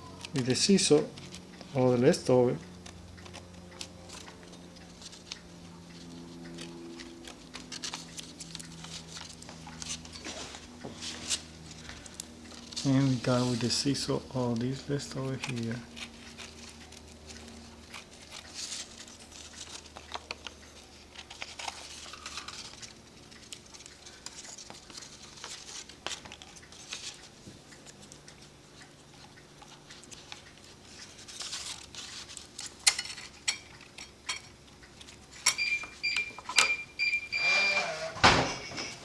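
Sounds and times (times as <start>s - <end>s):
paper rustling: 6.0s - 28.0s, 29.9s - 33.2s
high squeal: 37.3s - 39.0s.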